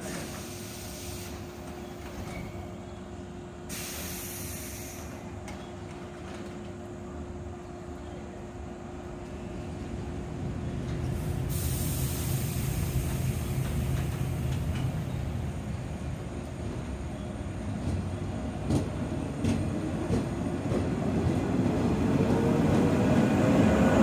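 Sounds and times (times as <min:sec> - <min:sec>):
compressed air hissing: 0:00.1 - 0:01.6, 0:03.7 - 0:05.3, 0:11.1 - 0:15.2
train pulling away rumble: 0:09.1 - 0:24.0.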